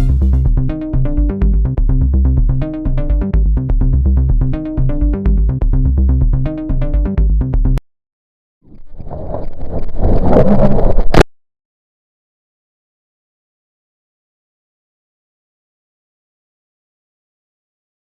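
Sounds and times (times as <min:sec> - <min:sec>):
electronic music with heavy bass: 0:00.0 - 0:07.8.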